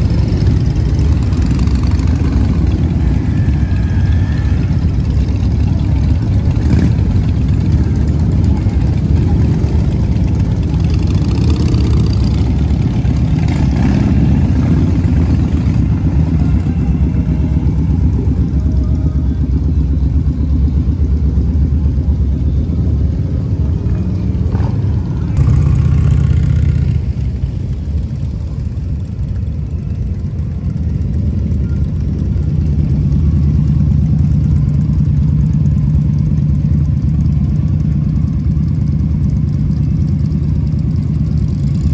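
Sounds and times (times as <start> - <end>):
engine idling nearby: 0.0 - 41.9
motorcycle engines rumbling: 0.0 - 41.9.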